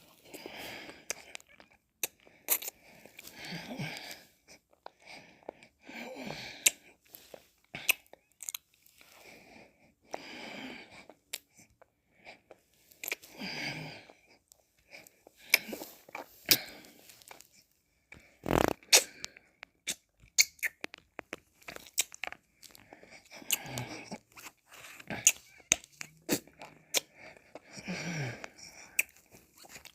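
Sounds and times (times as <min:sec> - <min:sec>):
lip smacks and tongue clicks: 0:07.8 - 0:08.7, 0:18.7 - 0:27.6, 0:28.7 - 0:29.9
licking and slurping: 0:18.2 - 0:29.9.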